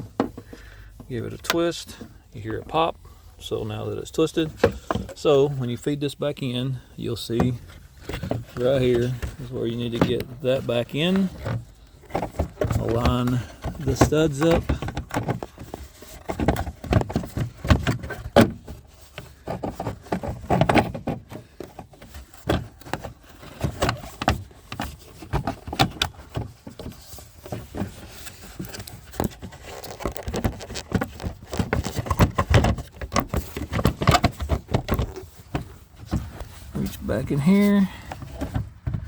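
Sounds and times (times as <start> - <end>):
plastic clicks and knocks: 11.2 - 36.3.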